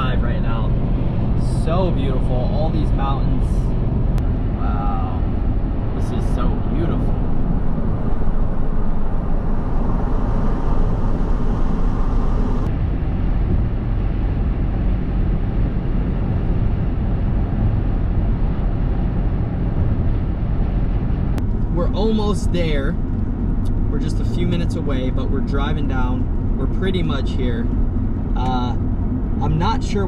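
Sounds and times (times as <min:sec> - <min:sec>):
truck engine and road rumble: 0:00.0 - 0:30.0
high road hiss: 0:04.5 - 0:05.4.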